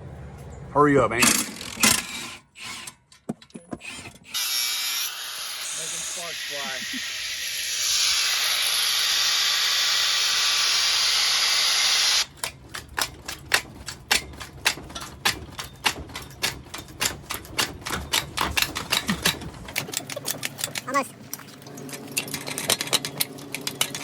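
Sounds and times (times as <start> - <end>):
power tool grinding metal: 3.8 - 12.3
sharp metallic clicks and taps: 12.2 - 21.4.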